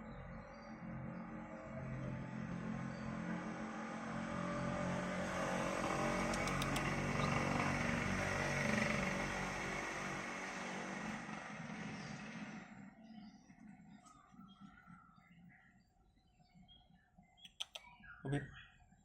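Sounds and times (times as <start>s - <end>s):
vehicle engine passing: 1.3s - 12.9s.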